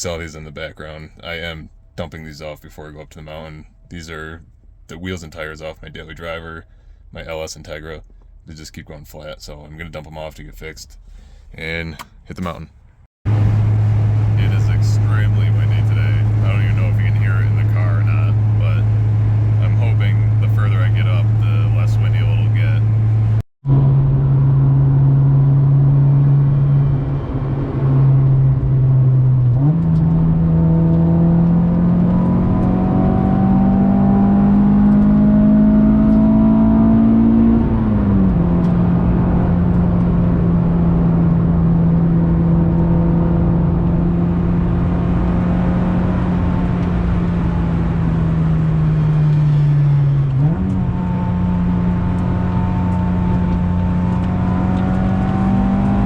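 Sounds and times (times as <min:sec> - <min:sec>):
car engine revving: 0:13.3 - 0:56.0.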